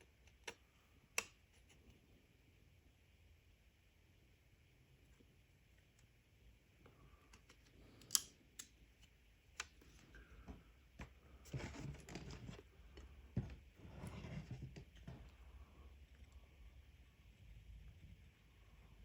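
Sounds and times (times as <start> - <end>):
rubbing or scraping: 11.3 - 15.3.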